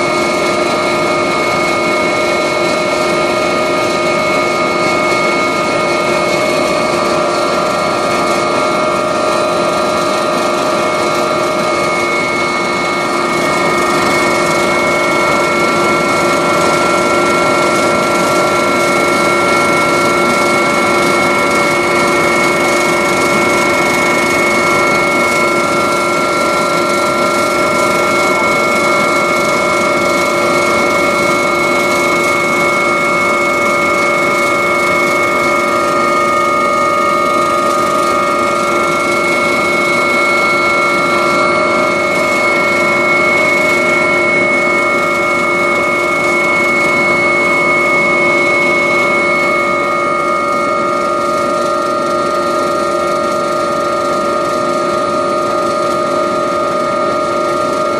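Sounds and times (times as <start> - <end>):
helicopter turbine running: 0.0 - 57.9
high whining tones: 0.0 - 57.9.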